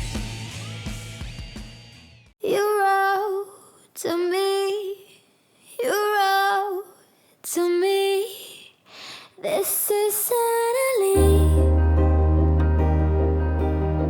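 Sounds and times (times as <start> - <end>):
woman singing: 2.4 - 12.2.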